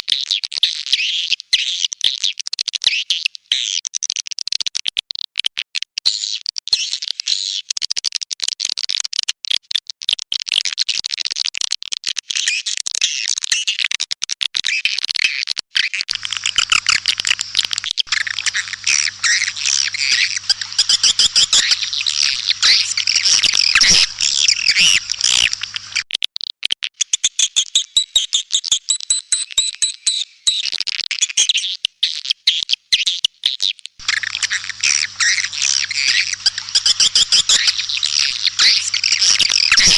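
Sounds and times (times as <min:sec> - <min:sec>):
faint low hum: 0:16.1 - 0:26.0, 0:34.0 - 0:39.9
swiftlets twittering and chirping: 0:16.1 - 0:26.0, 0:34.0 - 0:39.9.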